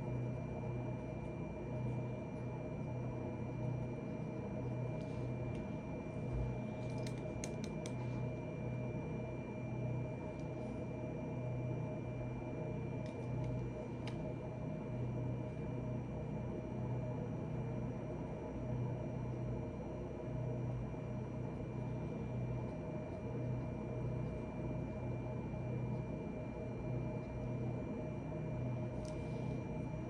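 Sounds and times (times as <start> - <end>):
low background hum: 0.0 - 30.0.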